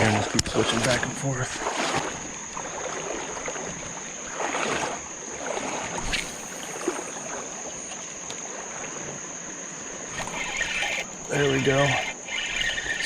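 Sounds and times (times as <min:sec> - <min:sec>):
creek water running: 0:00.0 - 0:13.0
insect drone: 0:00.0 - 0:13.0
swishing splash: 0:01.5 - 0:07.4.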